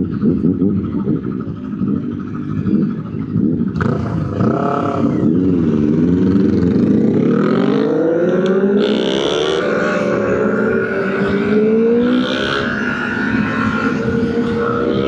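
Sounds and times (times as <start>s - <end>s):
motorcycle engine accelerating: 0.0s - 15.0s
wind noise: 9.6s - 15.0s.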